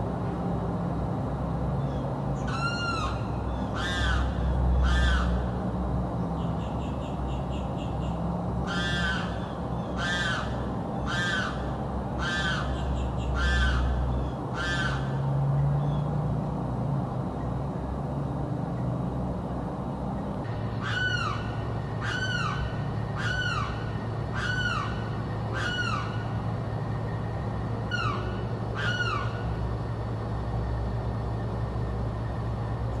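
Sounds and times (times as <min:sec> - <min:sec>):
low steady rumble: 0:00.0 - 0:33.0
bird screaming harsh calls: 0:01.8 - 0:05.5, 0:07.0 - 0:15.2, 0:20.7 - 0:26.4, 0:27.8 - 0:29.6.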